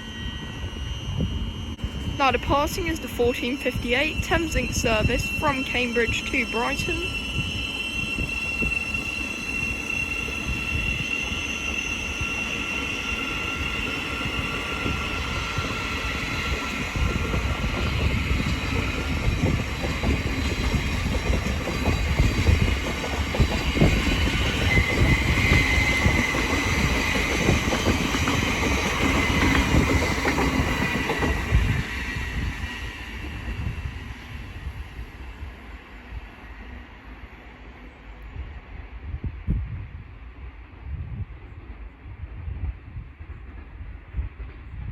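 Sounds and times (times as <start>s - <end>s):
electric train motors whining: 0.0s - 34.8s
train wheels clattering over rails: 14.3s - 32.1s.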